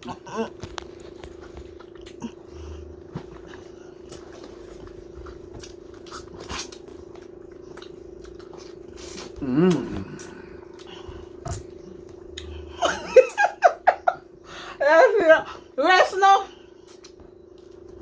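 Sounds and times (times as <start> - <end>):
chewing and mouth smacks: 0.0 - 12.7, 16.8 - 18.0
background hum: 0.0 - 18.0.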